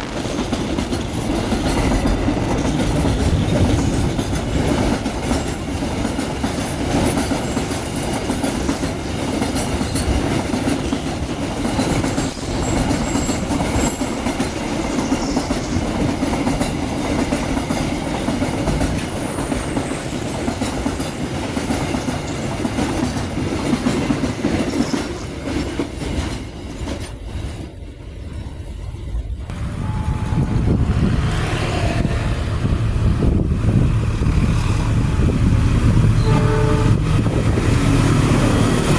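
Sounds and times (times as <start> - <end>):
train wheels clattering over rail joints: 0.0 - 29.5.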